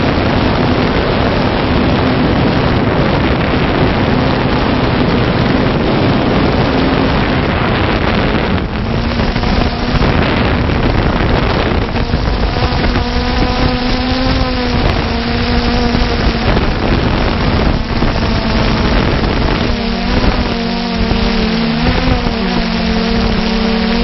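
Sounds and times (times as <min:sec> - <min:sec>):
drone propellers whining: 0:00.0 - 0:24.0
wind noise on microphone: 0:00.0 - 0:24.0.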